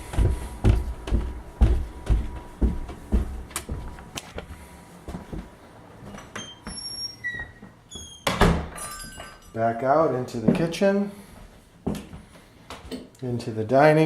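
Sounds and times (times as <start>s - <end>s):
footsteps thudding: 0.0s - 5.6s, 11.8s - 12.9s
faint high squeaks: 6.1s - 8.3s.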